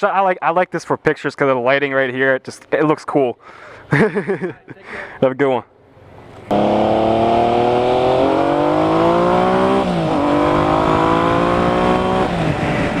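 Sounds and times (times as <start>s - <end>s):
motorcycle engine accelerating: 6.0s - 13.0s.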